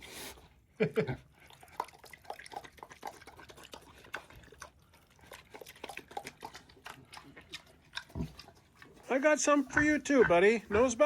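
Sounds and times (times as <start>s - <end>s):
pig chewing wetly: 0.0s - 11.0s.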